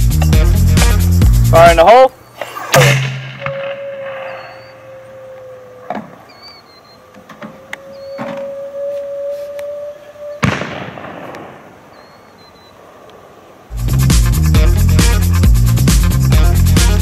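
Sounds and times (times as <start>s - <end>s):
music: 0.0s - 1.9s, 13.7s - 17.0s
faint bird chirps: 2.1s - 2.4s, 3.4s - 10.5s, 11.8s - 12.9s
mortar round whistling: 2.2s - 10.6s
sharp impact crack: 2.4s - 4.7s, 10.4s - 11.8s.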